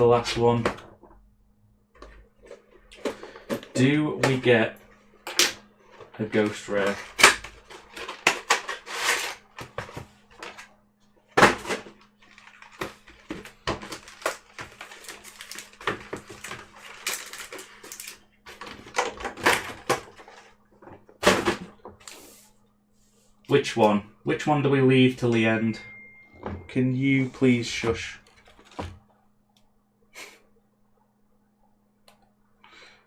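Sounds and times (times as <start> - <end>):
foil packs rustling and crinkling: 6.2 - 10.7, 11.4 - 20.5.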